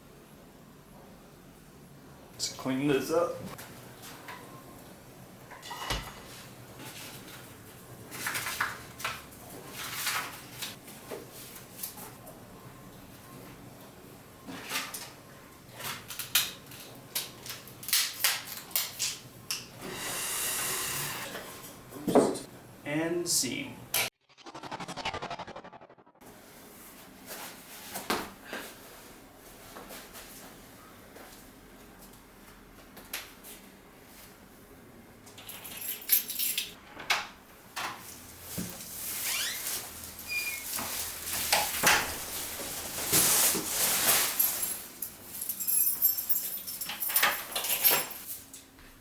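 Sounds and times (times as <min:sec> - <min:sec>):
rustles of handling: 0:38.0 - 0:46.8.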